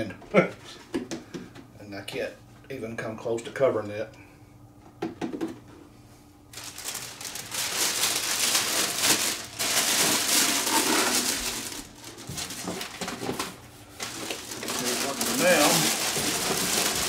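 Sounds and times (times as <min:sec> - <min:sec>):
plastic wrap rustling and crinkling: 0:06.5 - 0:17.0.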